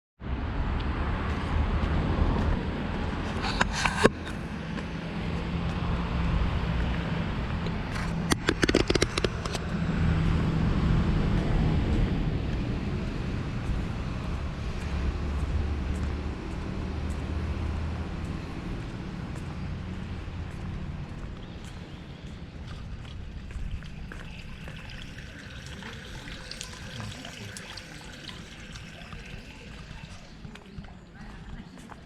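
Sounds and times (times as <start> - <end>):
plastic grip clicking and rattling: 8.3 - 9.6.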